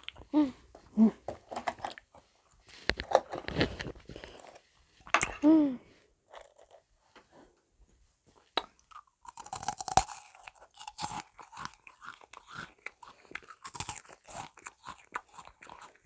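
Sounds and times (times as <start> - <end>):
cookie crunching: 8.6 - 16.0.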